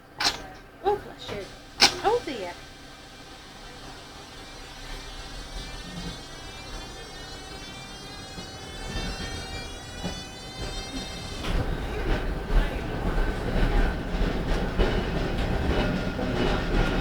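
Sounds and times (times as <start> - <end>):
tram electric drive whine: 0.0 - 17.0
tram wheels rumbling on rails: 0.0 - 17.0.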